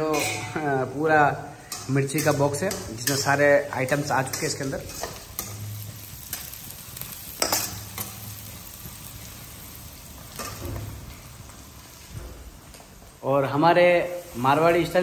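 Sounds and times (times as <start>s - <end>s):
onions sizzling in a pan: 0.0s - 15.0s
metal spatula scraping a pan: 1.6s - 6.6s.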